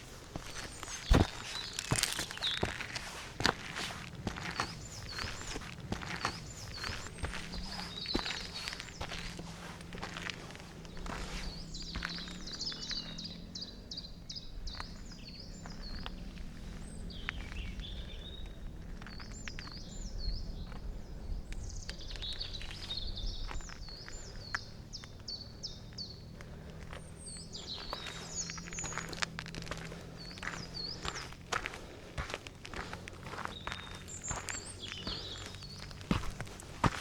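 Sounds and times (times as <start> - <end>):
footsteps crunching on forest floor: 0.0 - 13.5, 25.9 - 37.0.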